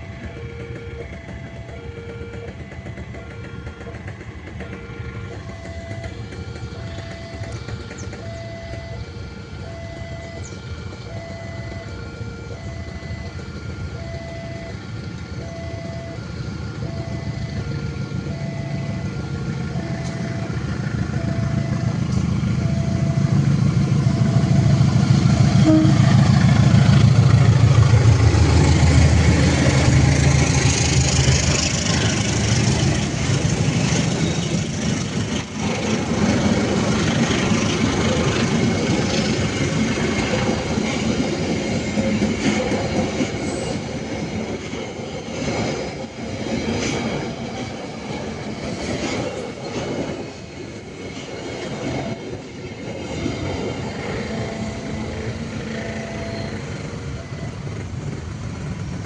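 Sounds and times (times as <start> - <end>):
level crossing warning bell: 0.0 - 27.1, 53.5 - 57.8
diesel locomotive engine: 0.0 - 59.0
train carriages rolling past: 0.0 - 59.0.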